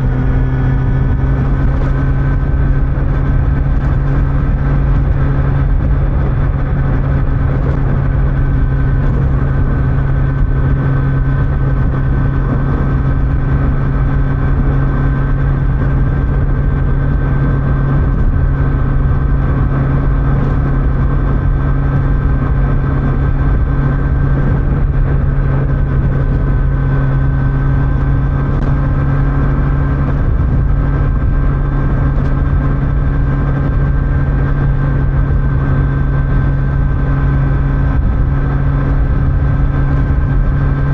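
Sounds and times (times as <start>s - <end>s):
motorcycle engine cruising: 0.0s - 40.9s
wind and road noise: 0.0s - 40.9s.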